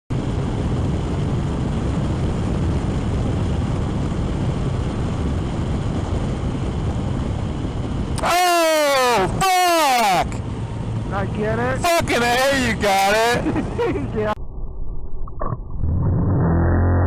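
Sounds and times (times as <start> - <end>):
wind buffeting microphone: 0.1 - 8.3
motorcycle road noise: 0.1 - 14.4, 15.9 - 17.0.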